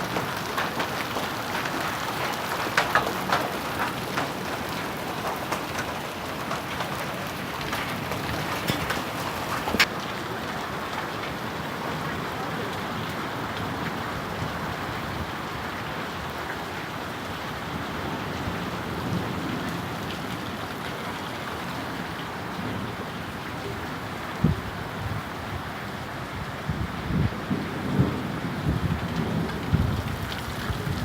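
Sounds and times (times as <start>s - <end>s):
rain and hail pouring down: 0.0s - 31.0s.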